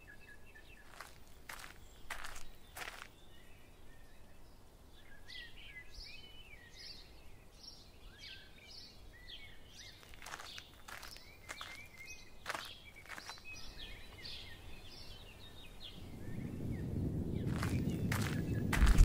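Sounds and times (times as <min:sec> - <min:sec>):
faint bird chirps: 0:00.0 - 0:18.8
footsteps on sand: 0:00.7 - 0:03.2, 0:09.8 - 0:14.4, 0:17.4 - 0:19.0.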